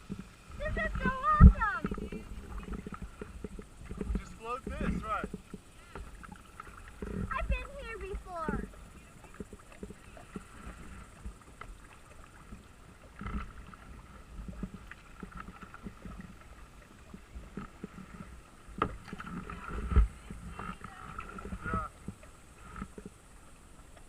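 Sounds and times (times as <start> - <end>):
low thumps: 0.0 - 5.6
paddle splashing in water: 0.0 - 24.0.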